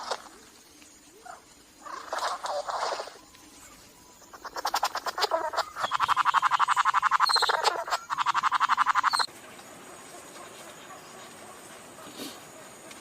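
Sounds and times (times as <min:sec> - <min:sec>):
bird rapid rattling call: 0:04.2 - 0:09.3.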